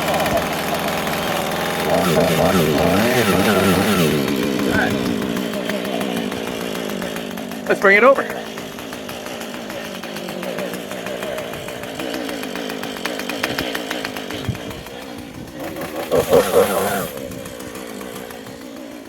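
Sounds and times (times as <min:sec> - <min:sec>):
chainsaw running: 0:00.0 - 0:19.0.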